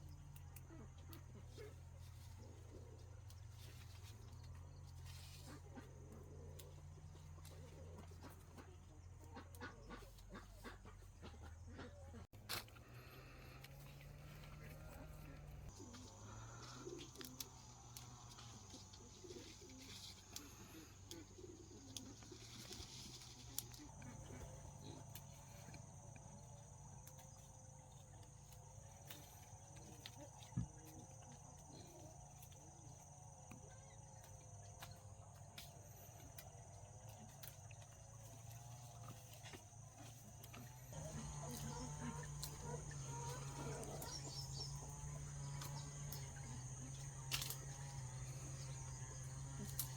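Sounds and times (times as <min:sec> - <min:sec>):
low hum: 0:10.5 - 0:49.9.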